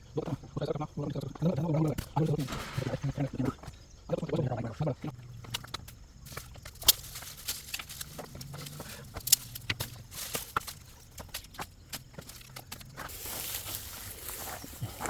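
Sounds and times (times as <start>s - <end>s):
dry wood snapping and crackling: 5.4s - 14.6s.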